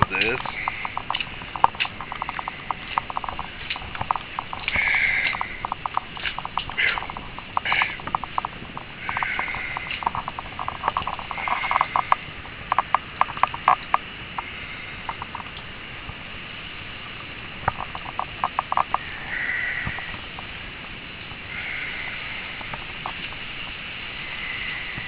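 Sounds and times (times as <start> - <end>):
wet snow pattering and dripping: 0.0 - 25.0.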